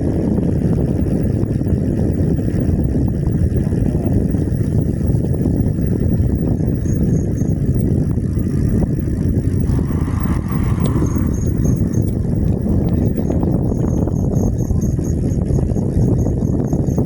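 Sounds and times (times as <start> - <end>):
wind buffeting microphone: 0.0 - 17.0
bike tyre noise rumble: 0.1 - 17.0
faint high ticking: 4.0 - 17.0.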